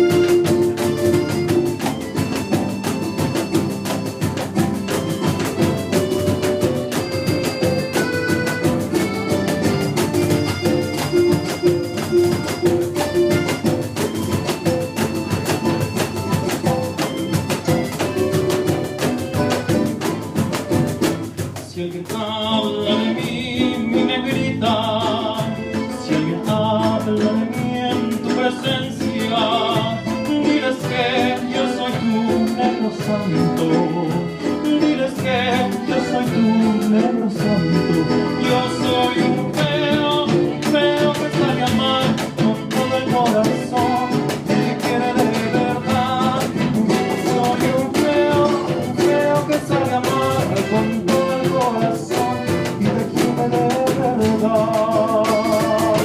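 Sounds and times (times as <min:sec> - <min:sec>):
live ensemble playing: 0:00.0 - 0:56.0
person singing: 0:21.0 - 0:56.0.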